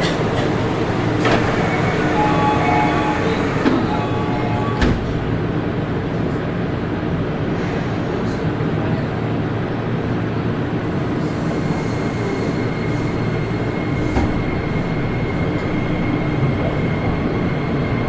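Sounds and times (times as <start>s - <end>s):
train clack: 0.0s - 6.3s, 11.2s - 18.0s
subway car wheels and motor rumble: 0.0s - 18.0s.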